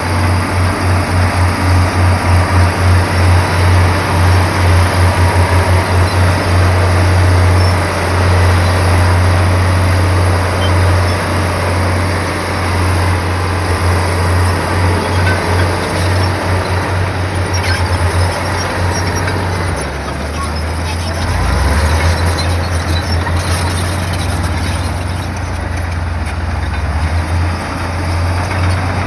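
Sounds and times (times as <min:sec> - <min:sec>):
heavy machinery diesel engine: 0:00.0 - 0:29.0.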